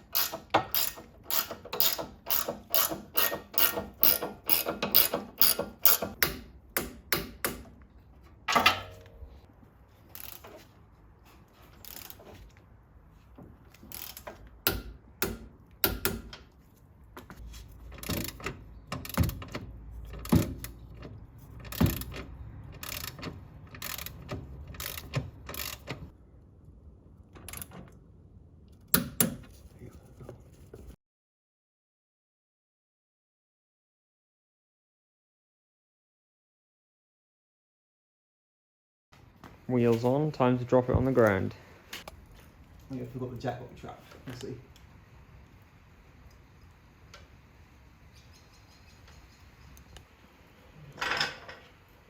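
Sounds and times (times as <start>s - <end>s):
socket ratchet clicking: 0.0s - 6.4s, 21.6s - 26.1s.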